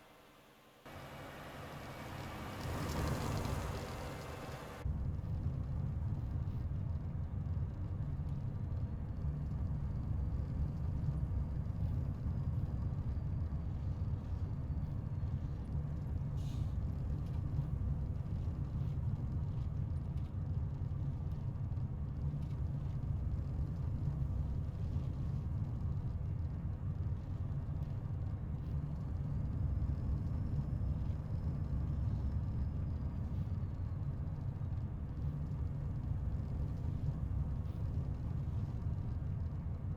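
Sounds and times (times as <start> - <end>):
road noise: 0.0 - 4.8
truck diesel engine driving: 0.9 - 4.8.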